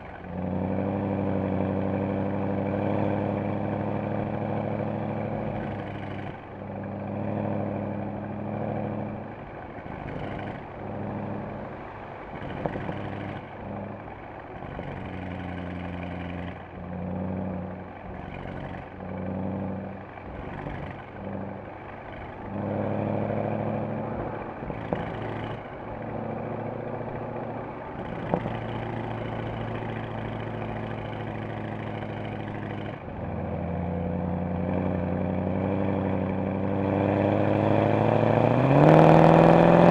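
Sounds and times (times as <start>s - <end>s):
car engine revving: 0.0s - 39.9s
exhaust cracks: 8.8s - 39.9s.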